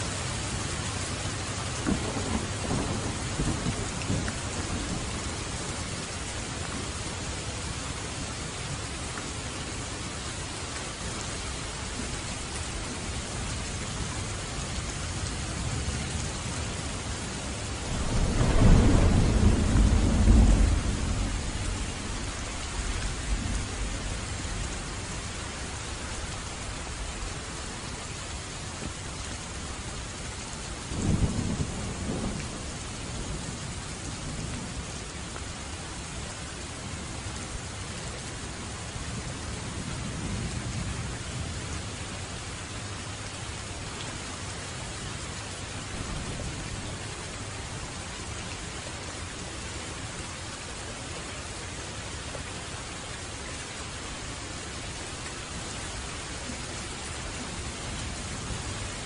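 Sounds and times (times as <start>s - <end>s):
heavy rain: 0.0s - 59.0s
thunder rumbling: 1.8s - 5.6s, 17.8s - 25.3s, 30.9s - 34.8s.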